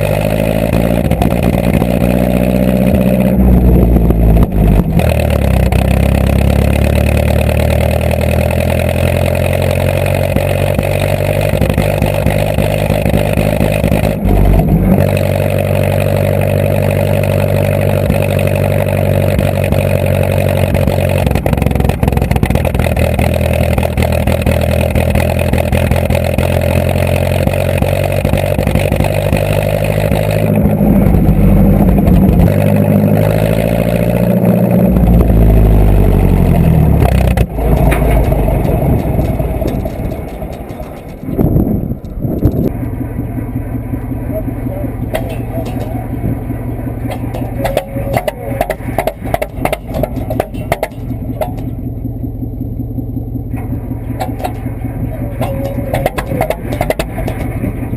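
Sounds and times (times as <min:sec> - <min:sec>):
vehicle engine running: 0:00.0 - 0:57.9.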